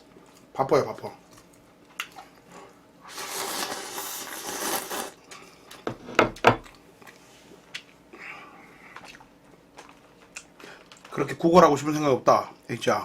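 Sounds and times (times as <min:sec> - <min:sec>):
person slurping noodles: 0:03.1 - 0:05.2.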